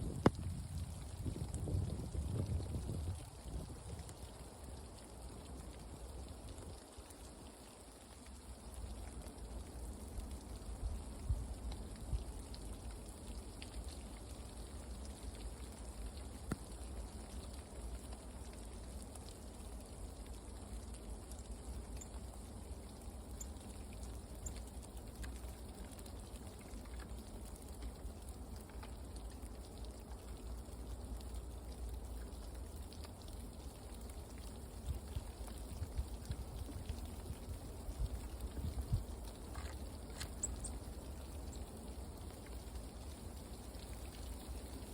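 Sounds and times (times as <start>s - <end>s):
rain pattering on leaves: 0.0s - 44.9s.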